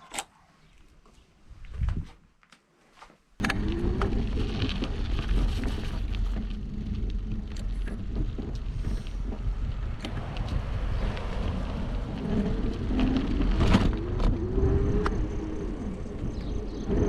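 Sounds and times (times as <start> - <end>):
wind buffeting microphone: 1.5 - 2.2, 3.4 - 17.0
bike tyre noise: 3.4 - 17.0.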